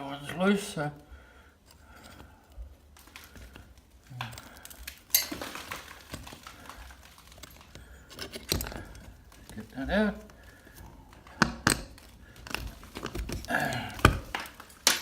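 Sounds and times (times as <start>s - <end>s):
metallic clinks and scrapes: 4.2s - 5.8s.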